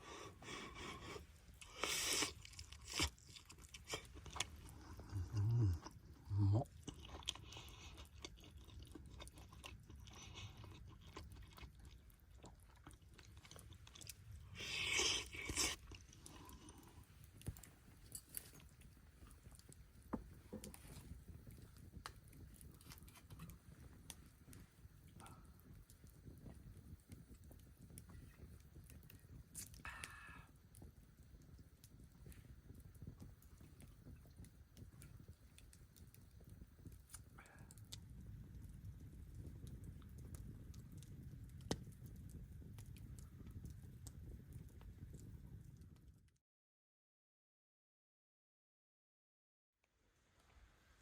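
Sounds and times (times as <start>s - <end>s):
crunching and chewing: 0.1s - 30.2s.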